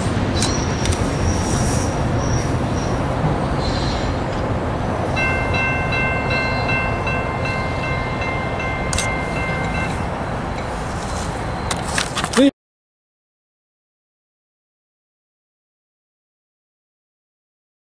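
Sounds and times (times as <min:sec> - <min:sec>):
passenger train rumbling past: 0:00.0 - 0:12.3
crossing bell ringing tone: 0:05.0 - 0:11.7.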